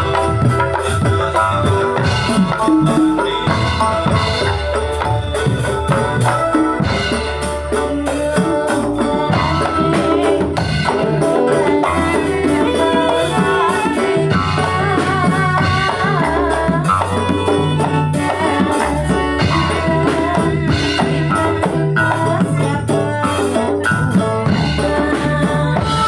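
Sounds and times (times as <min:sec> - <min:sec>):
dense drumming: 0:00.0 - 0:18.3
rattling percussion: 0:00.0 - 0:26.0
sustained bass line: 0:00.0 - 0:26.0
wavering melody line: 0:00.0 - 0:26.0.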